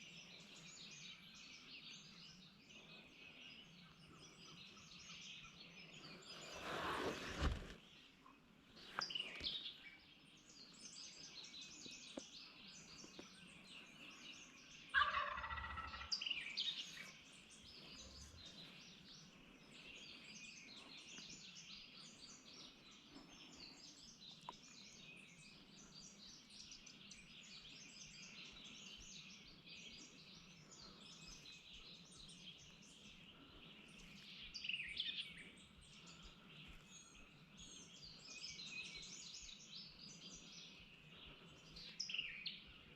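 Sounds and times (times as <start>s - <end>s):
songbirds chorus: 0.0s - 42.9s
turkey gobbling: 14.9s - 16.1s.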